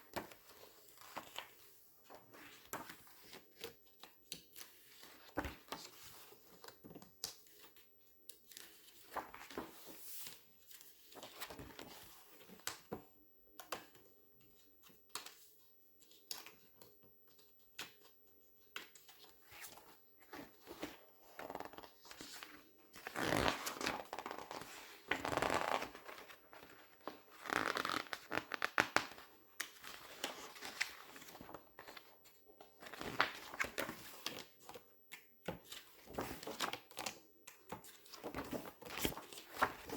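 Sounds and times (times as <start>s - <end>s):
magazine pages crackling and rustling: 8.5s - 12.4s, 19.2s - 32.1s, 32.8s - 34.8s, 35.6s - 37.2s, 37.9s - 39.9s.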